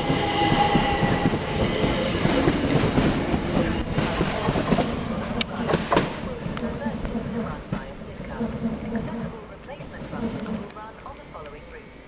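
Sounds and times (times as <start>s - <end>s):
train wheels clattering over rail joints: 0.0s - 11.5s
train whine: 0.0s - 12.0s.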